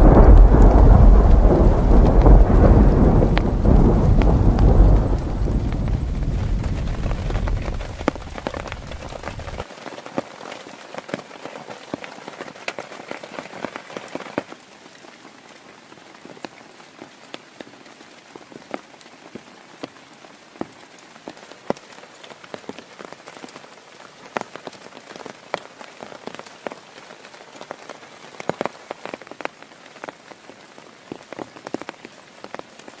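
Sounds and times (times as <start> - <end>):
low rumble of thunder: 0.0 - 9.6
rain falling: 0.0 - 33.0.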